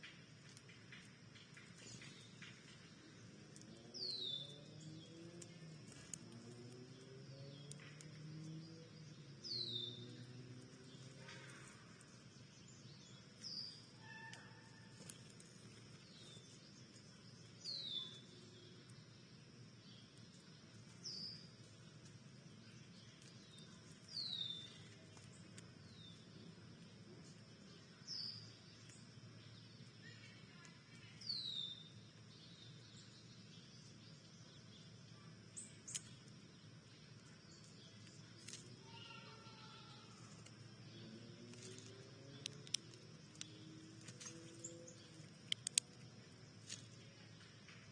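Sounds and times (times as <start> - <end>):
faint background noise: 0.0 - 47.9
faint outdoor background noise: 0.0 - 47.9
songbird chirping: 0.0 - 47.9
songbird whistle: 13.4 - 15.2
sharp clicks: 41.6 - 44.3, 45.0 - 46.9.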